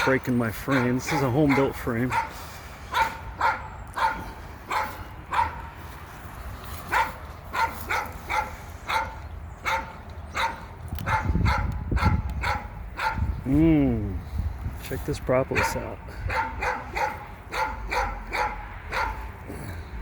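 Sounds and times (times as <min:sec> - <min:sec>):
dog barking: 0:00.0 - 0:05.7, 0:06.9 - 0:13.3, 0:15.5 - 0:19.3.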